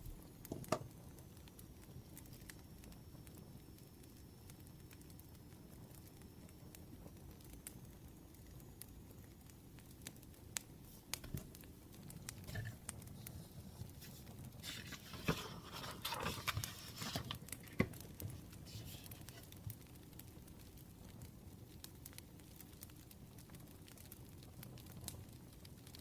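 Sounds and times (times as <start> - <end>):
wood fire crackling: 0.0 - 26.0
rustling: 10.9 - 19.7.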